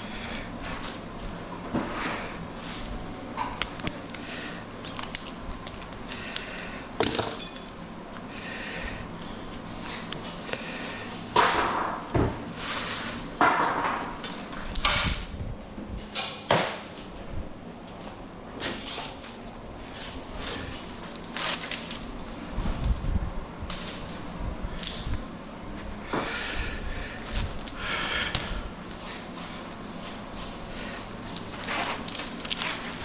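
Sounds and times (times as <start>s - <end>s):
metallic ring: 7.4s - 7.9s.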